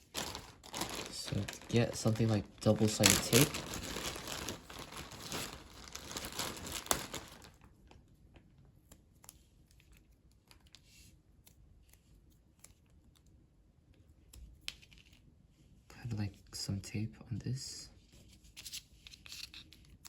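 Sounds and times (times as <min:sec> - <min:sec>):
paper and tape being handled: 0:00.0 - 0:07.6, 0:18.2 - 0:20.0
tissue paper crinkling: 0:00.0 - 0:07.7.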